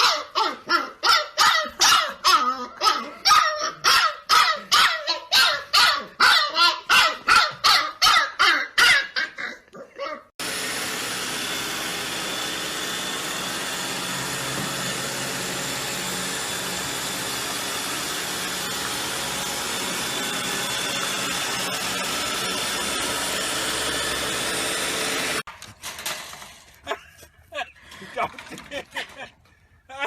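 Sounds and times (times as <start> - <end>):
mechanical motor hum: 10.4 - 25.5.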